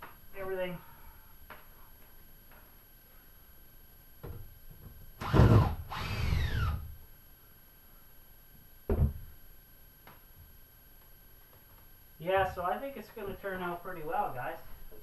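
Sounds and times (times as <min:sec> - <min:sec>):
power drill whining: 0:05.2 - 0:06.9.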